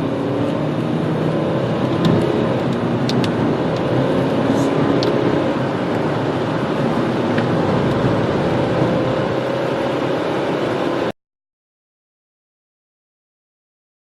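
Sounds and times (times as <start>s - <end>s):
car engine accelerating: 0.0s - 11.1s.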